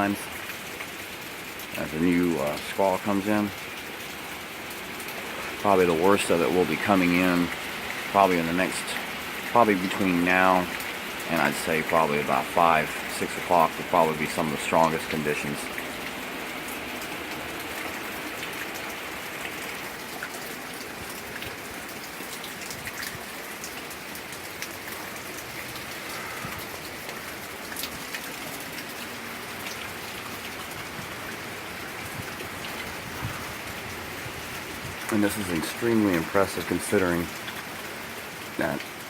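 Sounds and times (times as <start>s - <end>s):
heavy rain: 0.0s - 39.0s
raindrops ticking on surface: 0.0s - 39.0s.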